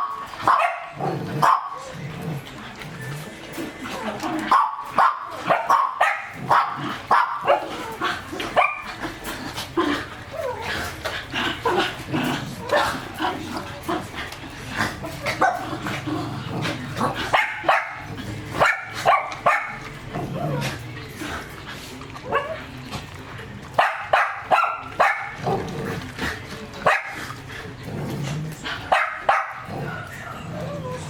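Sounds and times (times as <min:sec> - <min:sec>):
dog barking and yipping: 0:00.0 - 0:01.8, 0:04.5 - 0:07.7, 0:08.6 - 0:08.9, 0:17.3 - 0:19.8, 0:23.8 - 0:25.4, 0:28.9 - 0:29.7.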